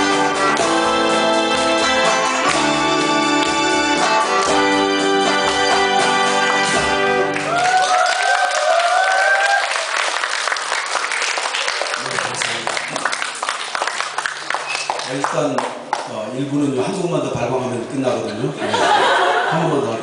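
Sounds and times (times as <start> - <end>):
held keyboard chord: 0.0 - 7.4
audience applauding: 2.4 - 16.1
people cheering: 7.2 - 15.3.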